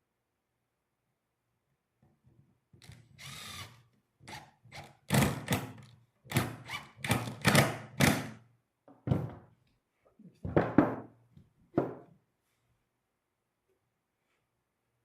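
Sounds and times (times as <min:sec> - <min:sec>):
power drill whirring: 0:02.8 - 0:05.6.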